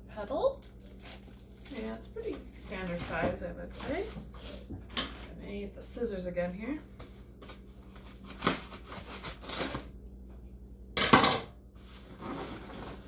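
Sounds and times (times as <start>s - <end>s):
cardboard scraping rustle: 11.8s - 13.0s.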